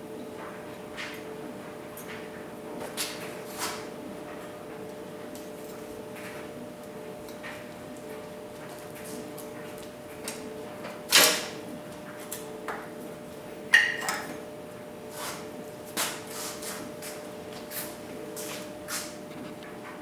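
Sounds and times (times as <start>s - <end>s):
metal tools clanking and knocking: 13.8s - 14.4s.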